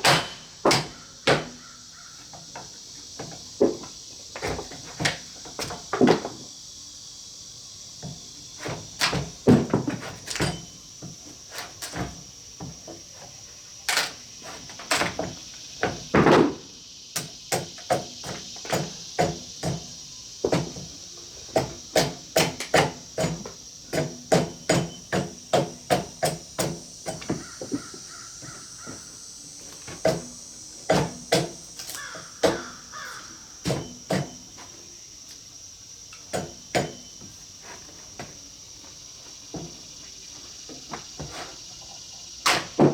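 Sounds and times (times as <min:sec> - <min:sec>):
tool striking wood: 0:00.0 - 0:01.6, 0:36.3 - 0:37.1
high buzz of insects: 0:00.0 - 0:42.9
crows cawing: 0:00.9 - 0:02.3, 0:27.3 - 0:29.1, 0:31.9 - 0:33.6
wooden knocks and clunks: 0:08.0 - 0:11.2.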